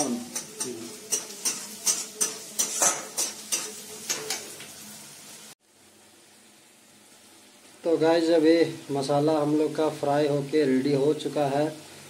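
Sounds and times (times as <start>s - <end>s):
metal spatula scraping a pan: 0.0s - 4.6s
onions sizzling in hot oil: 0.0s - 12.0s.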